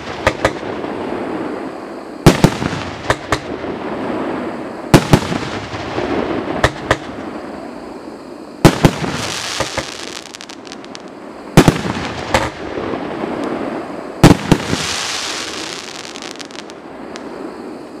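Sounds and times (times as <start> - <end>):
fireworks bangs: 0.0 - 7.6, 8.6 - 17.8
hissing crackle of bursting shells: 8.6 - 12.7, 14.2 - 17.6.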